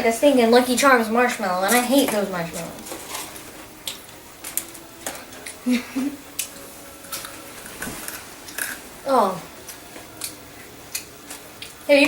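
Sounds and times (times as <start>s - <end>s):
brittle food crunching: 2.8s - 5.6s, 6.4s - 8.8s, 9.6s - 11.8s.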